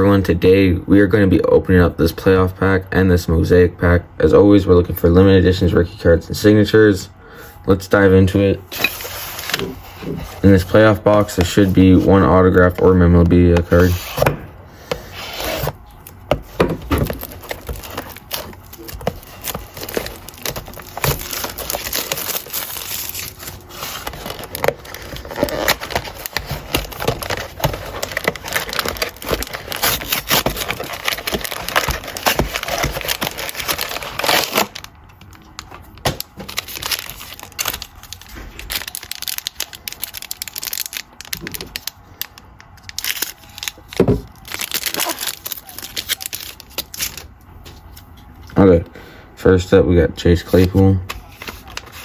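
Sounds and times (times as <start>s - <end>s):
plastic wrapping crinkling and tearing: 8.7s - 47.9s, 50.5s - 52.0s
cards handled with rustles and clicks: 8.8s - 48.7s, 50.4s - 52.0s.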